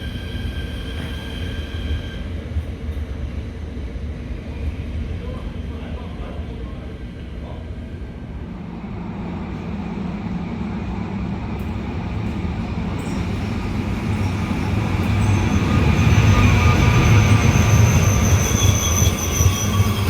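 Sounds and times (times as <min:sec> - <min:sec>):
train rumbling: 0:00.0 - 0:20.0
high wheel squeal: 0:13.0 - 0:20.0.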